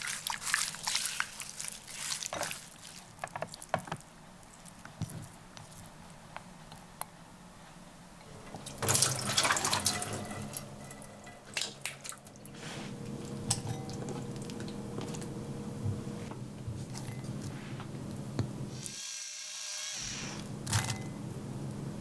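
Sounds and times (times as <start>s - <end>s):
steady low hum: 10.4s - 18.8s.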